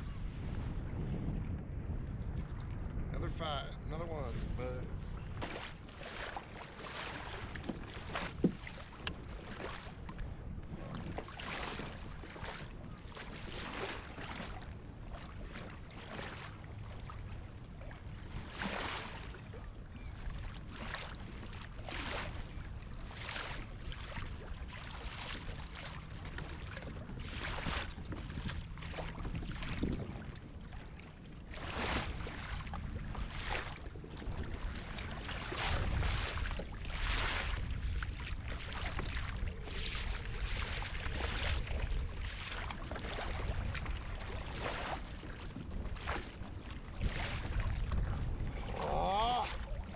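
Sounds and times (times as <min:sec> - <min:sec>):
wind on microphone: 0:00.0 - 0:49.9
water splashing against kayak hull: 0:04.3 - 0:49.9.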